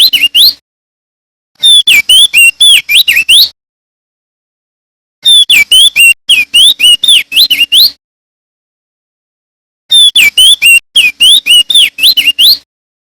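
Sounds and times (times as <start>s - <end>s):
bird singing whistled notes: 0.0s - 0.6s, 1.6s - 3.6s, 5.2s - 8.0s, 9.9s - 12.7s.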